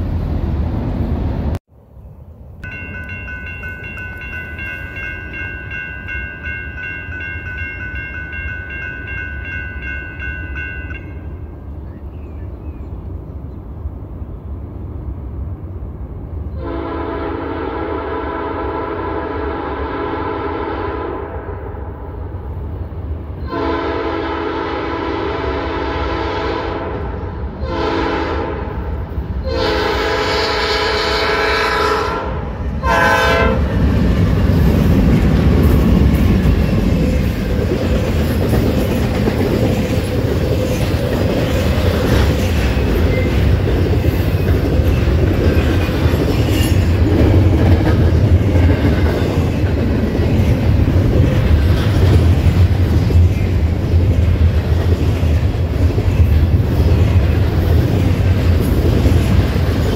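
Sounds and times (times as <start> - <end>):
freight train rumbling past: 0.0 - 59.9
locomotive air horn blasts: 16.6 - 21.6, 23.4 - 33.7.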